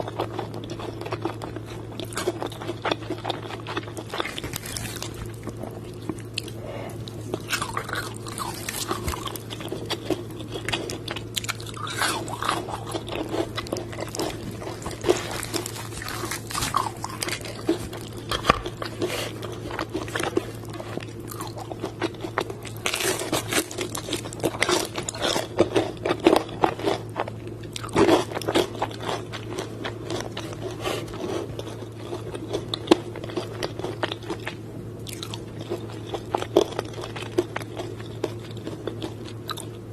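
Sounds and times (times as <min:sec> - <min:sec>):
crunching and chewing crispy food: 0:00.0 - 0:39.9.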